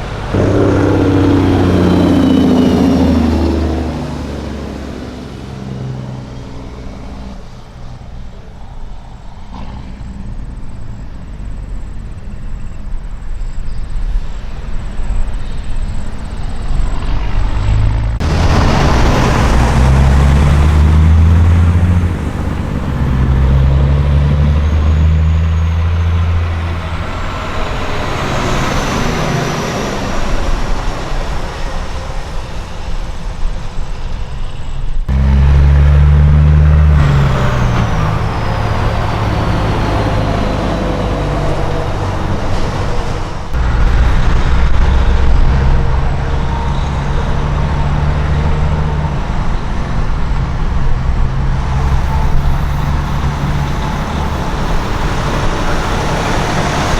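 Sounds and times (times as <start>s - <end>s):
high whine falling in pitch: 0.0s - 5.4s
truck diesel engines passing: 0.0s - 56.9s.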